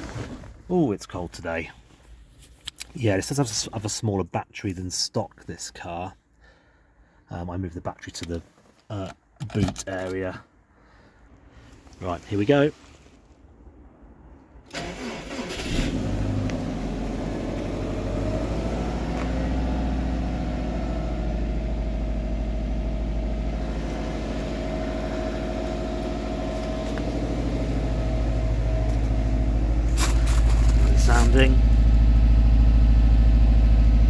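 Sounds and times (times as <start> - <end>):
car engine cranking and idling: 14.4 - 34.0.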